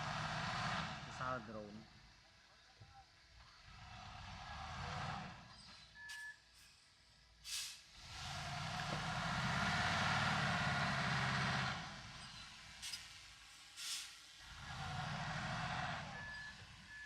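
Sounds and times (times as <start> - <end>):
heavy diesel engine revving: 0.0 - 1.4, 3.6 - 5.5, 8.0 - 12.8, 14.4 - 17.0
short hiss: 7.4 - 7.9, 12.8 - 14.3.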